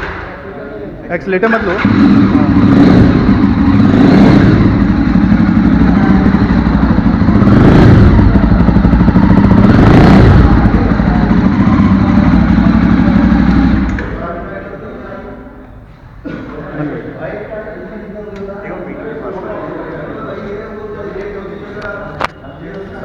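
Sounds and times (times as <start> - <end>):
motorcycle engine running: 1.6 - 15.1.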